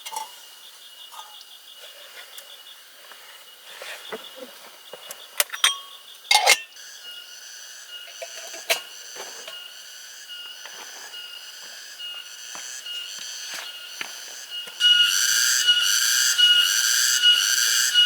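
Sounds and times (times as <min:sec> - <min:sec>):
high-pitched insect drone: 0:06.7 - 0:18.0.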